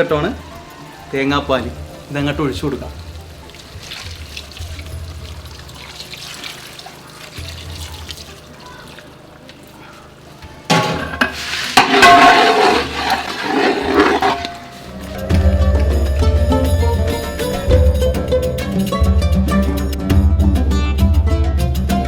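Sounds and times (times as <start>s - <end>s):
liquid pouring into pan: 1.8s - 14.9s
swishing stirring in pan: 2.9s - 15.0s.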